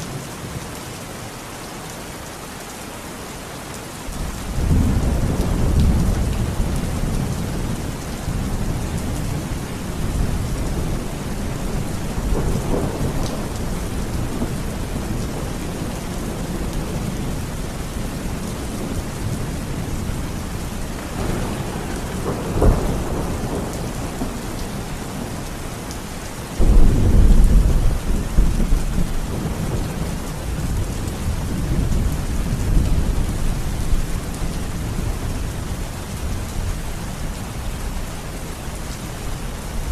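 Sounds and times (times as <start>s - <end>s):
steady rain: 0.0s - 39.9s
rumbling thunder: 4.1s - 35.8s.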